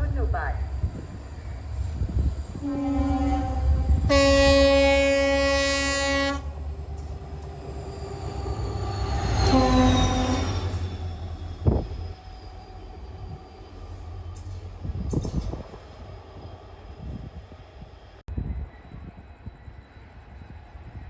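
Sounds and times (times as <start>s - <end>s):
train rumbling: 0.0s - 21.0s
train air horn blasts: 2.6s - 6.6s, 9.4s - 10.6s.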